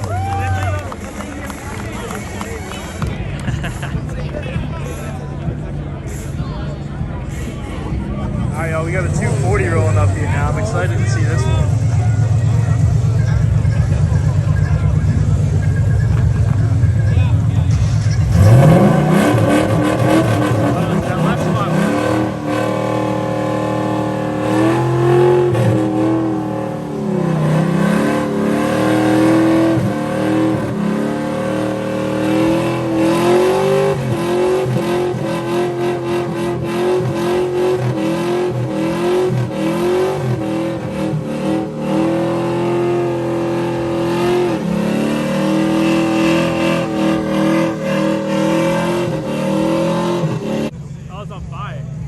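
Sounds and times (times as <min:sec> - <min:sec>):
car engine revving high: 0:04.6 - 0:50.9.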